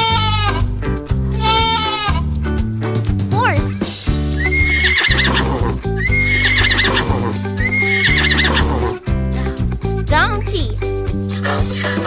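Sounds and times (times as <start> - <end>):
background music: 0.0 - 12.0
horse whinnying: 4.4 - 9.0.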